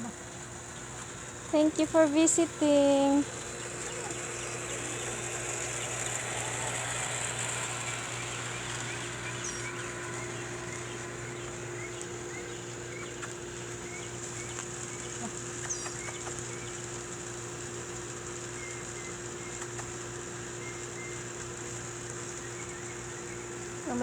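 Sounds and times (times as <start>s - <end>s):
low steady hum: 0.0s - 24.0s
small birds chirping: 0.0s - 24.0s
steady high hiss: 0.0s - 24.0s
sharp high bird calls: 2.2s - 17.0s.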